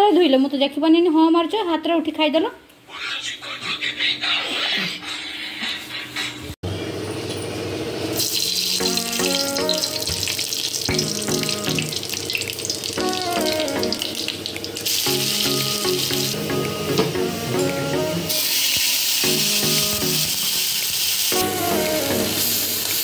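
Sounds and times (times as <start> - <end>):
oil sizzling as food fries: 8.0 - 23.0
background music melody: 8.7 - 20.5, 21.3 - 23.0.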